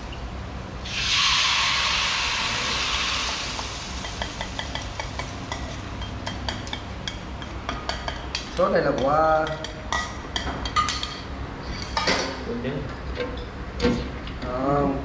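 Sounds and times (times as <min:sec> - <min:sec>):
chicken sizzling in hot oil: 0:00.8 - 0:05.9.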